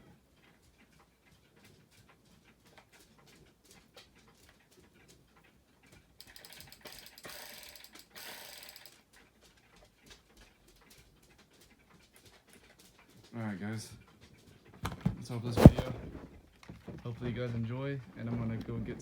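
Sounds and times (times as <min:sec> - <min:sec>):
small clicks: 0:06.2 - 0:09.0
plastic rustling: 0:14.8 - 0:16.4.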